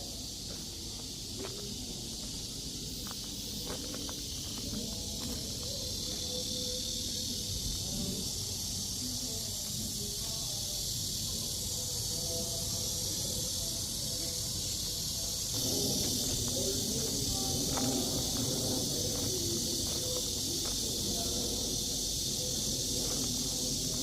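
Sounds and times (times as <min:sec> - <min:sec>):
insect chorus: 0:00.0 - 0:24.0.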